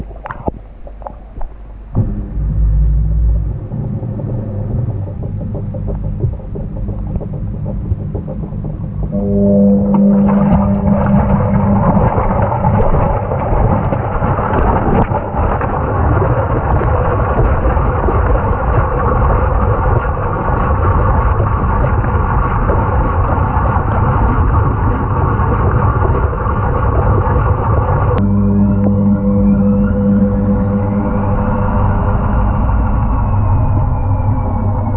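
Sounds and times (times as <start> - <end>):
low hum: 0.0 - 34.9
washing machine churning water: 3.7 - 28.2.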